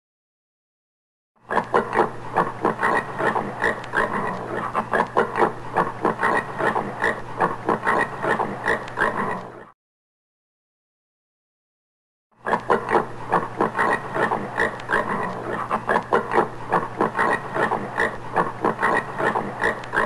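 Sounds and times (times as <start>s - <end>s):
warthog grunting: 1.5s - 9.7s, 12.5s - 20.0s.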